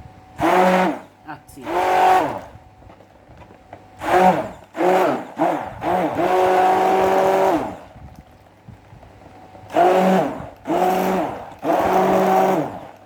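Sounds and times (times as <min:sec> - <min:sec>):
electric mixer whining: 0:00.4 - 0:02.6, 0:04.0 - 0:08.1, 0:09.6 - 0:13.0.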